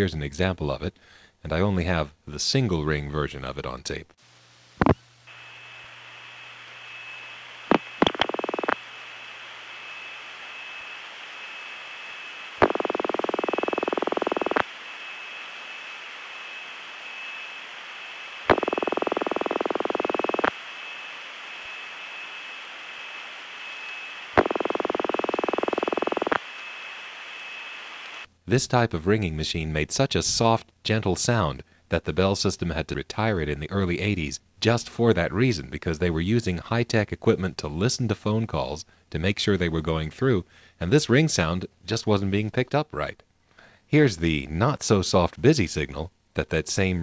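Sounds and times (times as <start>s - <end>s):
telephone line hiss: 4.8s - 28.3s
switching clicks: 7.7s - 8.8s
telephone ringback tone: 7.7s - 8.8s, 12.6s - 14.6s, 18.5s - 20.5s, 24.4s - 26.4s.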